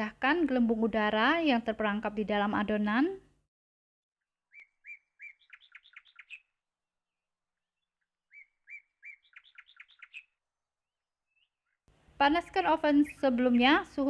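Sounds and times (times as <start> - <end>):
small songbird singing: 4.2 - 6.6, 7.6 - 10.4, 12.9 - 14.0.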